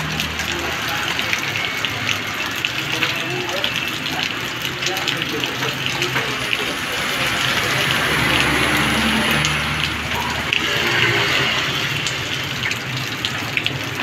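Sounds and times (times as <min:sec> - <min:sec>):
heavy rain on road: 0:00.0 - 0:14.0
motor scooter passing: 0:06.9 - 0:12.8.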